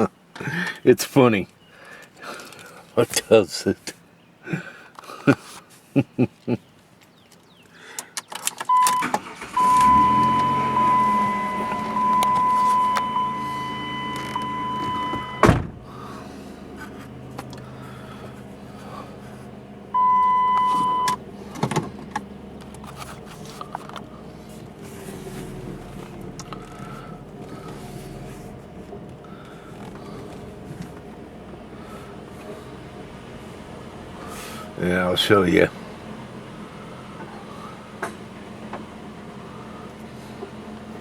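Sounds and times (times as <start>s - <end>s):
car engine running: 8.6s - 41.0s
car warning chime: 8.7s - 15.6s, 19.9s - 21.2s
car door slamming: 8.7s - 15.9s.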